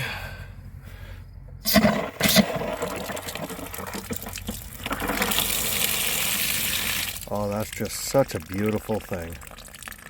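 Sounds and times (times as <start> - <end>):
water spurting from hose spigot: 1.6 - 10.0
water running steadily: 2.6 - 10.0.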